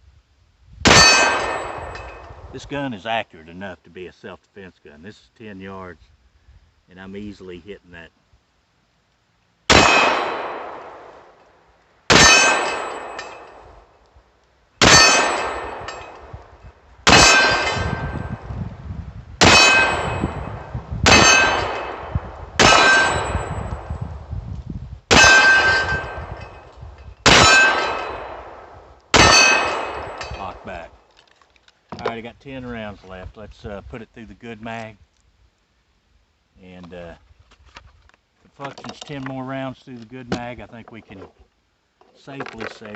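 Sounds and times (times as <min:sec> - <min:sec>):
steel target ringing: 0:00.9 - 0:02.2, 0:09.7 - 0:10.8, 0:12.1 - 0:13.6, 0:14.8 - 0:16.3, 0:17.1 - 0:18.4, 0:19.4 - 0:23.7, 0:25.1 - 0:28.6, 0:29.2 - 0:30.6
pistol shots: 0:09.7 - 0:11.1, 0:12.1 - 0:13.6, 0:14.8 - 0:16.1, 0:17.1 - 0:18.0, 0:19.4 - 0:20.2, 0:21.1 - 0:23.4, 0:25.1 - 0:26.2, 0:27.2 - 0:30.7.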